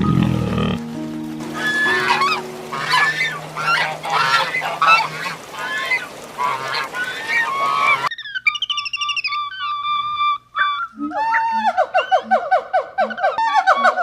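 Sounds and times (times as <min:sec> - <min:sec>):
music with low held notes: 0:00.0 - 0:05.0
fowl calling: 0:00.7 - 0:14.0.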